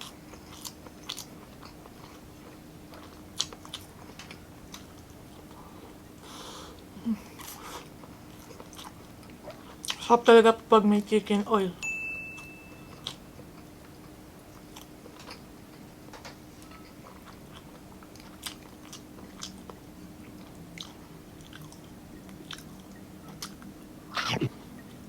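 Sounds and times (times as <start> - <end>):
close chewing: 0.0 - 6.0, 6.7 - 10.1, 16.6 - 24.8
faint steady hum: 0.0 - 25.0
mouth clicks and smacks: 24.2 - 24.6.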